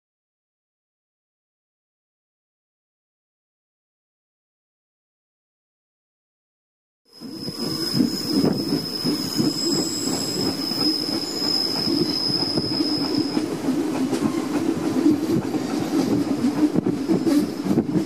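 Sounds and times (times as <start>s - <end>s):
high wheel squeal: 7.1s - 13.6s
train wheels rumbling: 7.1s - 18.0s.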